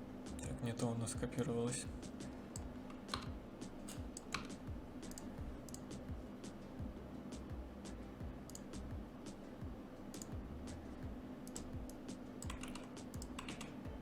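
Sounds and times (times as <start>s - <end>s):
low steady hum: 0.0s - 14.0s
computer keyboard key presses: 2.5s - 5.9s, 11.5s - 13.8s.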